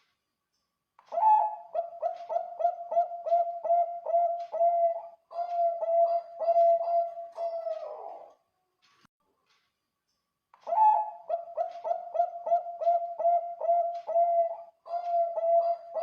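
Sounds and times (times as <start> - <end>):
dove cooing: 1.1 - 8.3, 10.7 - 16.0.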